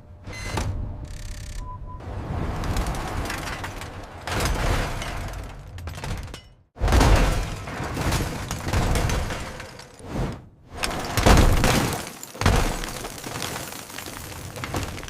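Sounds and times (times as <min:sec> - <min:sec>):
cartoon demolition crashes: 0:02.2 - 0:10.1, 0:10.8 - 0:15.0
debris shattering: 0:02.4 - 0:10.0, 0:10.8 - 0:15.0.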